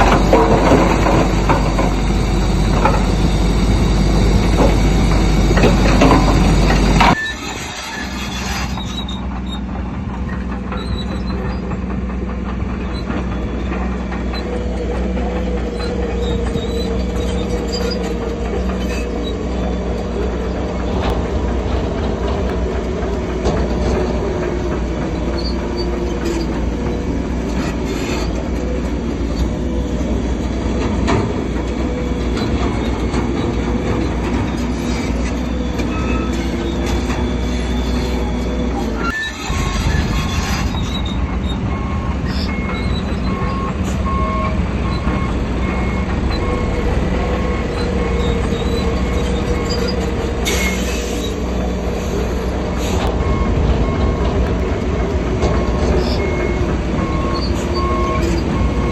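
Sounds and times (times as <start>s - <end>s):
diesel engine running: 0.0s - 58.9s
steel tracks squealing and clanking: 0.0s - 58.9s.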